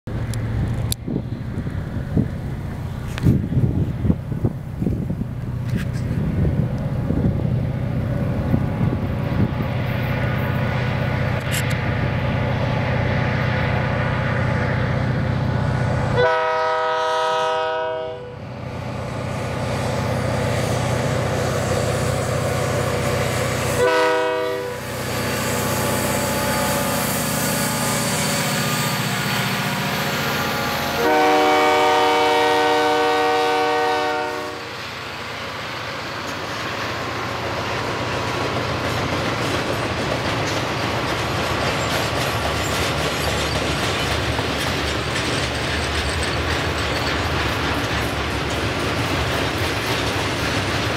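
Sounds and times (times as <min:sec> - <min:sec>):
locomotive rumbling: 0:00.1 - 0:50.9
train wheel clatter: 0:00.2 - 0:14.0, 0:34.7 - 0:50.9
locomotive air horn: 0:16.2 - 0:18.4, 0:23.6 - 0:29.6, 0:30.2 - 0:34.8.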